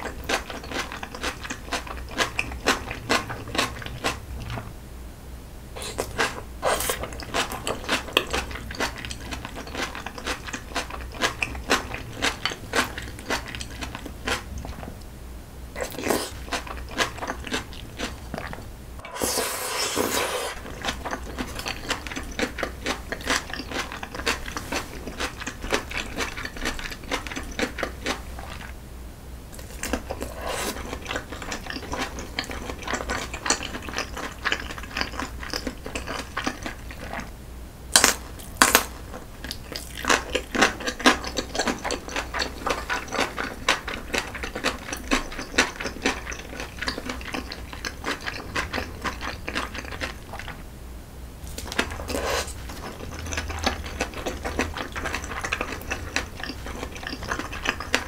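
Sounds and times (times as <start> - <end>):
chewing with wet mouth clicks: 0.0 - 4.6, 5.8 - 15.1, 15.8 - 18.6, 20.5 - 28.8, 29.5 - 37.3, 38.0 - 50.6, 51.5 - 58.0.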